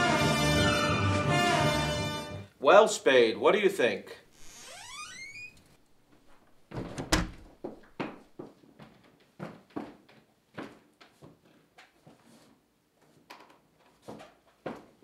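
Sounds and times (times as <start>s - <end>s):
footsteps on hard floor: 6.1s - 11.4s
wooden door thumping shut: 6.7s - 7.6s.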